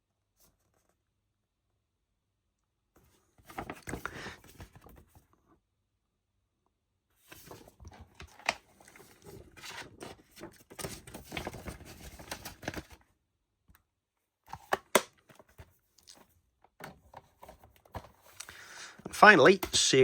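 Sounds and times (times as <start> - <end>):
plastic case sliding and rustling: 14.5 - 19.8
plastic case clicks: 14.6 - 15.2.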